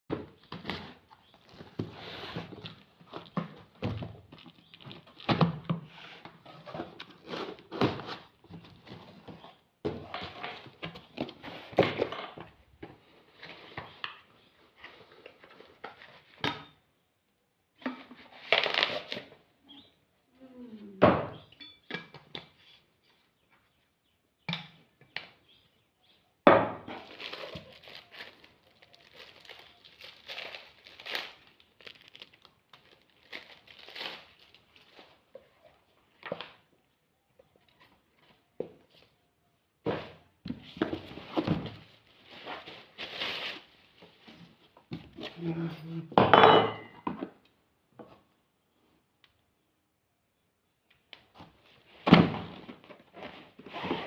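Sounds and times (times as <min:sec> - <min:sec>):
packaging rustling: 0:27.0 - 0:35.2
box thunks and knocks: 0:52.0 - 0:52.8.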